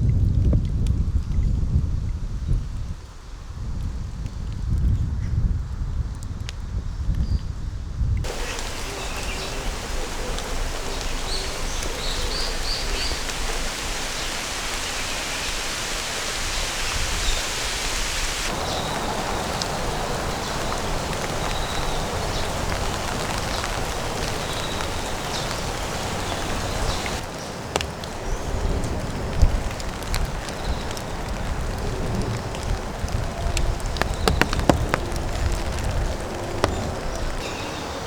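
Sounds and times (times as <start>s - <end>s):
steady rain falling: 8.2s - 38.0s.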